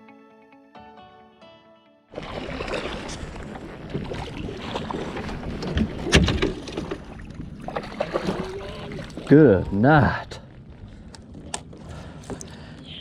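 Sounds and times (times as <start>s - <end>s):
kayak handling noises: 2.2s - 9.3s, 10.4s - 12.9s.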